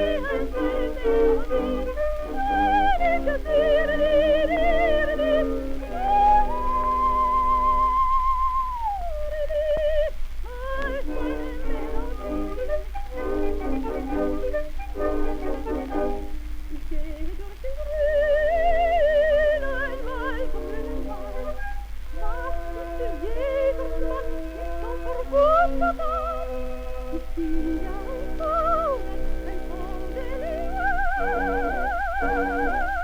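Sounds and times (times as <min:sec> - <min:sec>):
low recording hum: 0:00.0 - 0:33.0
soprano singing with trills: 0:00.0 - 0:33.0
instrumental accompaniment: 0:10.8 - 0:17.0.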